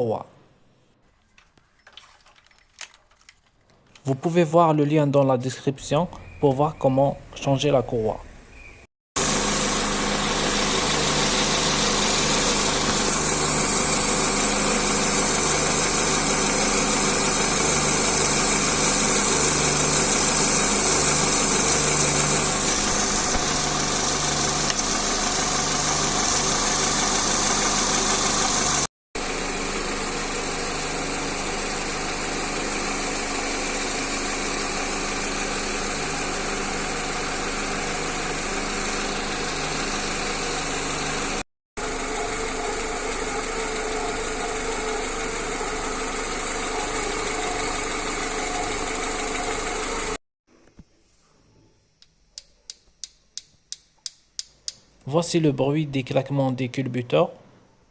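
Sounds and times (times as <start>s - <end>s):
car engine idling: 9.2s - 50.2s.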